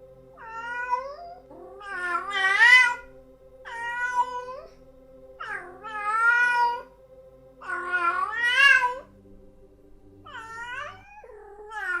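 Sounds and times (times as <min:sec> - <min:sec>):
cat meowing: 0:00.4 - 0:03.0, 0:03.7 - 0:04.7, 0:05.4 - 0:06.9, 0:07.6 - 0:09.1, 0:10.3 - 0:12.0.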